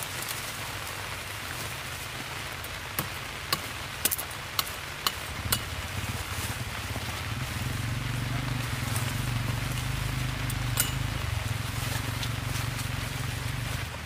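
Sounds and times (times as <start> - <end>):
heavy rain hiss: 0.0 - 14.0
sharp clicks and knocks: 10.5 - 11.3.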